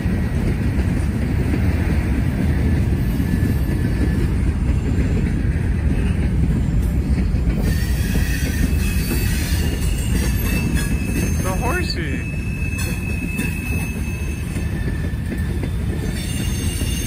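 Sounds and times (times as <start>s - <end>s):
train wheels rumbling on rails: 0.0s - 17.0s
faint wheel squeal: 7.6s - 17.0s.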